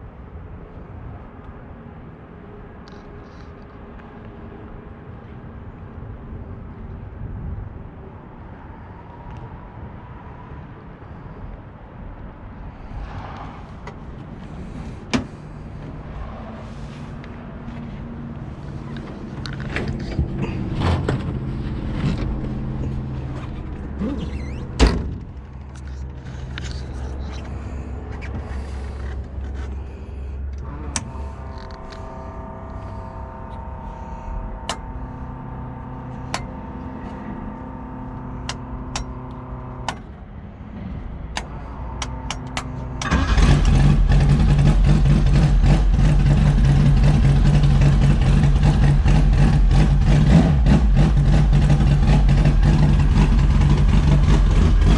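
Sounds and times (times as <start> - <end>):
race car engine idling: 42.0 - 54.9.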